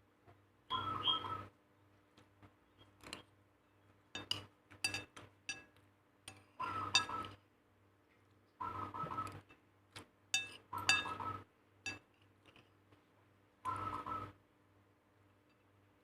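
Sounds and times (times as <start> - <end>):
kitchenware clatter: 4.2 - 5.7, 6.3 - 7.2, 10.4 - 11.2, 11.9 - 12.1
utensils clinking against dishes: 4.2 - 5.7, 6.3 - 7.3, 10.4 - 11.3, 11.9 - 12.1.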